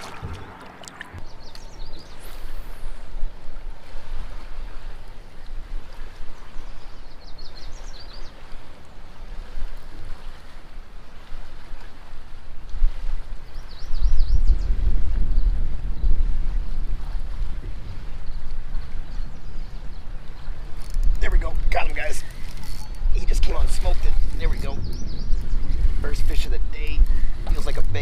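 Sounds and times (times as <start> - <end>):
river water running: 0.0 - 28.0.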